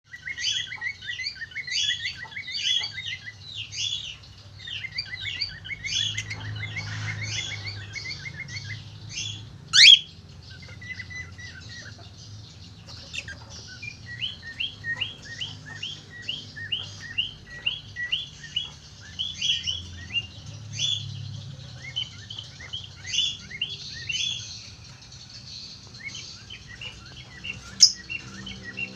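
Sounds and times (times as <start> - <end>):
cockatiels chirping: 0.1 - 28.9
loud rising bird call: 9.8 - 10.1.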